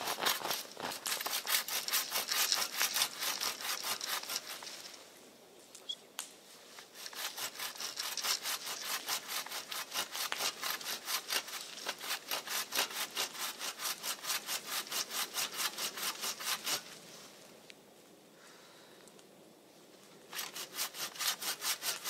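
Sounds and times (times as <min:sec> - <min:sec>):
hand saw cutting wood: 0:00.0 - 0:05.0, 0:06.8 - 0:17.0, 0:20.3 - 0:22.0.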